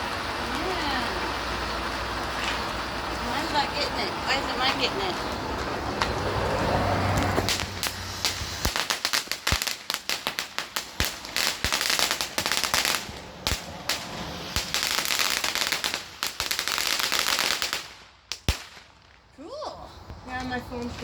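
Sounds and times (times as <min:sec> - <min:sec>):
rapid firework crackling: 0:00.0 - 0:19.4
firework fountain hissing: 0:00.0 - 0:21.0
sharp firework crack: 0:05.9 - 0:19.4.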